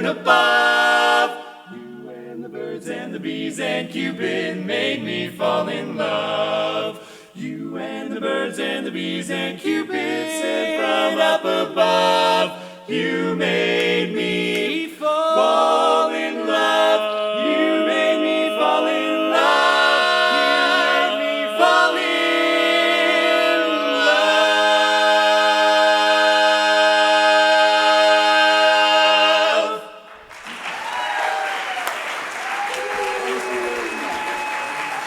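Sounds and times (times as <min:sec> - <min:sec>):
quartet singing in harmony: 0:00.0 - 0:30.2
audience applause: 0:30.1 - 0:35.0.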